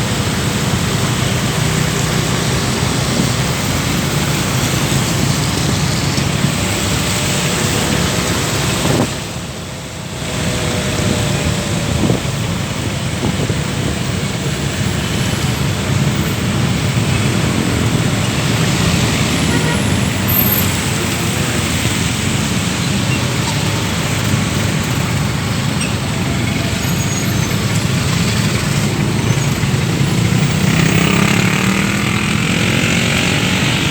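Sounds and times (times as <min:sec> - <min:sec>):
steady rain: 0:00.0 - 0:11.8
road traffic rumble: 0:00.0 - 0:33.9.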